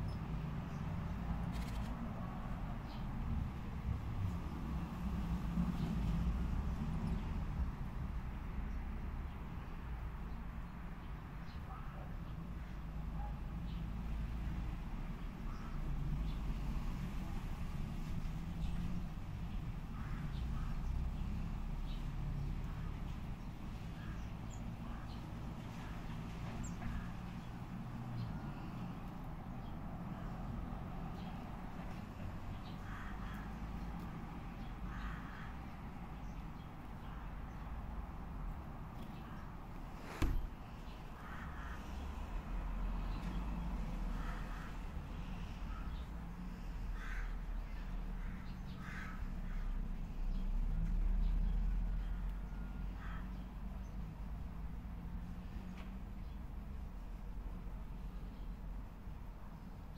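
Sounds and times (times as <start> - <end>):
small birds chirping: 18.1 - 52.4
crow rasping calls: 32.8 - 33.6, 34.9 - 35.6, 46.9 - 49.7, 53.0 - 53.3.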